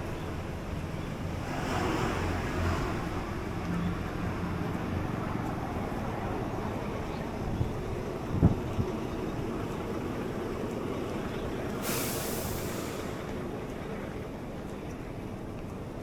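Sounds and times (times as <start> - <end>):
low rumble of wind: 0.0 - 16.0
traffic rumble: 0.0 - 16.0
vehicle passing: 1.2 - 6.0.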